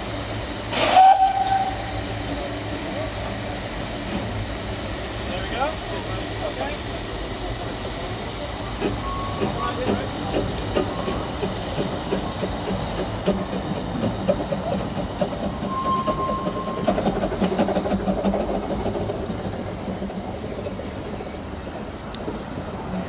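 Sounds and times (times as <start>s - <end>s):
steam hissing: 0.0s - 23.0s
wheels clattering over rail joints: 8.8s - 23.0s.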